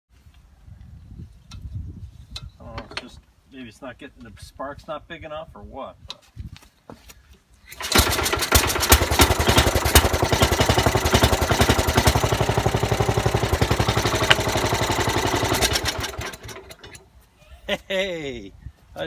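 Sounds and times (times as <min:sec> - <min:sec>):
single-cylinder engine running: 0:07.7 - 0:17.0.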